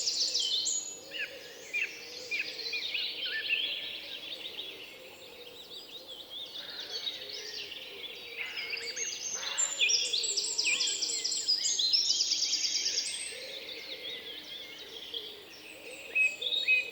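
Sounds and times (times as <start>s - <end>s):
songbirds chirping and whistling: 0.0s - 16.9s.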